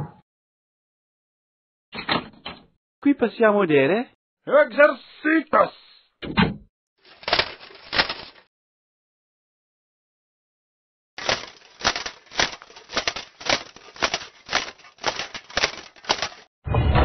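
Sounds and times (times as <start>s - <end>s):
marching footsteps: 7.1s - 8.4s, 11.2s - 16.5s.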